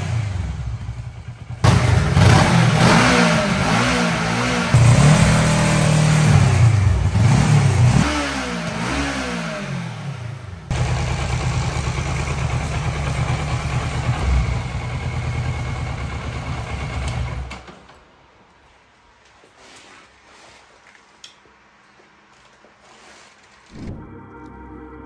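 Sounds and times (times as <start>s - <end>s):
motorcycle engine idling: 0.0s - 17.6s
motorcycle engine revving: 0.0s - 17.7s.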